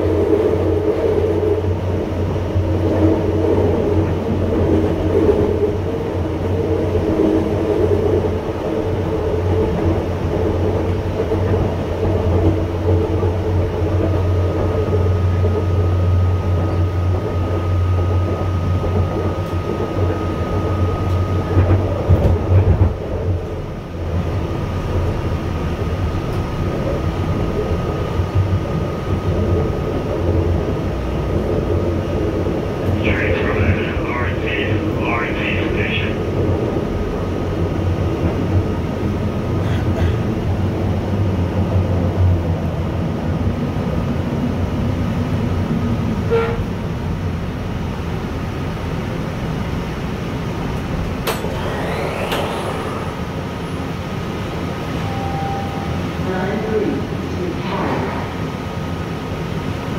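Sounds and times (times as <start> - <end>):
train interior running noise: 0.0 - 59.9
thin high tone: 55.0 - 56.3.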